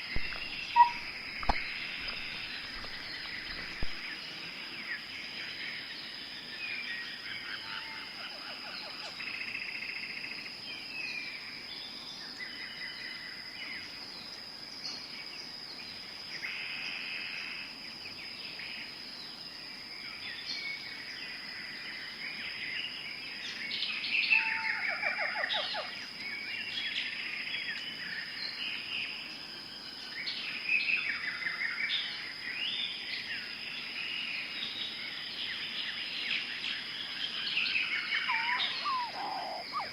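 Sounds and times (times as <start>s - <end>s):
high-pitched insect tone: 0.0s - 6.0s, 30.5s - 39.9s
birds calling and trilling: 0.0s - 9.5s, 34.0s - 39.9s.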